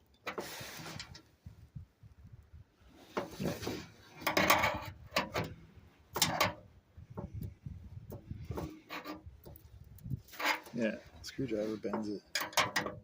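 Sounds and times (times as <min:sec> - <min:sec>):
screwdriver scraping metal: 0:08.5 - 0:09.3.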